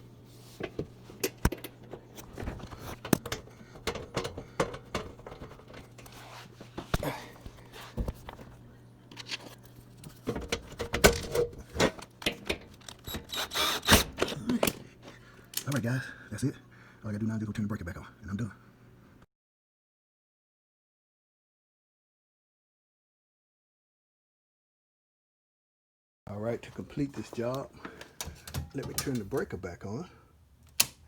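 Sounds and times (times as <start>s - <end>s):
faint steady hum: 0.0s - 19.3s
screwdriver and metal parts clattering: 1.1s - 6.2s, 9.1s - 15.8s, 28.2s - 29.5s.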